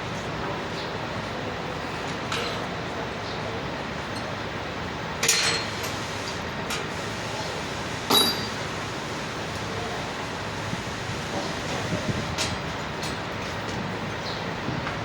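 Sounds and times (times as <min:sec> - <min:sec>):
steady background hum: 0:00.0 - 0:15.0
metal clanks with ring: 0:05.2 - 0:05.8, 0:08.1 - 0:08.6.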